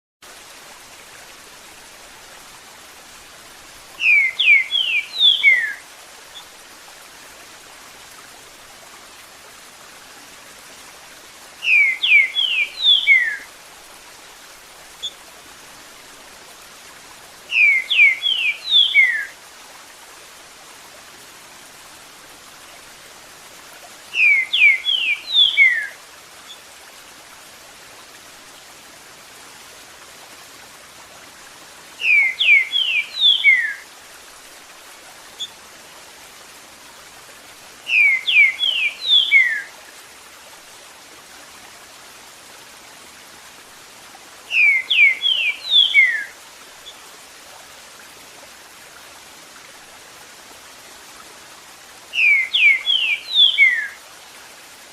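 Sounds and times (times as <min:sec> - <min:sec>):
running water: 0:00.2 - 0:54.9
bird whistling song: 0:04.0 - 0:05.8, 0:11.6 - 0:13.5, 0:17.5 - 0:19.3, 0:24.2 - 0:26.0, 0:32.0 - 0:33.8, 0:37.9 - 0:39.7, 0:44.5 - 0:46.3, 0:52.2 - 0:54.0.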